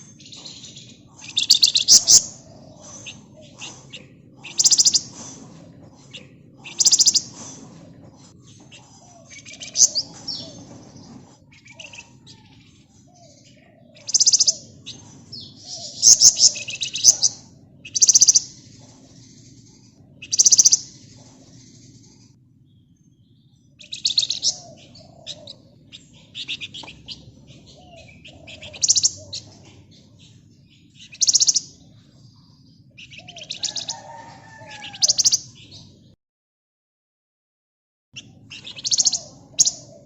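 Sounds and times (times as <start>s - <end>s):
bird singing rattling bursts: 0.0s - 7.9s, 14.0s - 19.5s, 20.2s - 22.1s.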